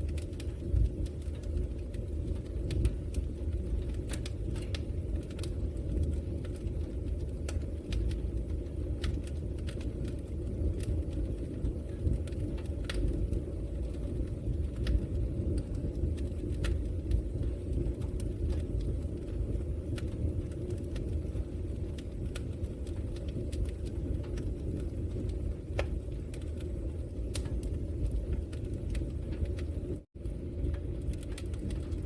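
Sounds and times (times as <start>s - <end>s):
fire crackling and popping: 0.0s - 32.0s
low rumble of flames: 0.0s - 32.0s.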